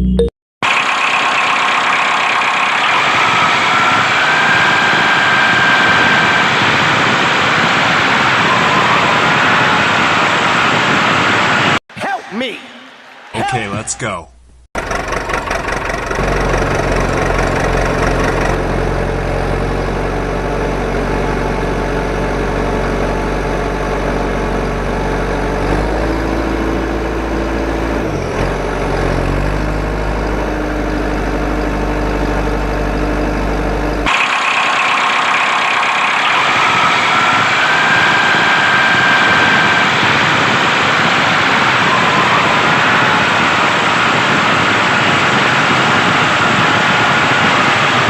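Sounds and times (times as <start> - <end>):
engine humming: 14.4 - 48.0.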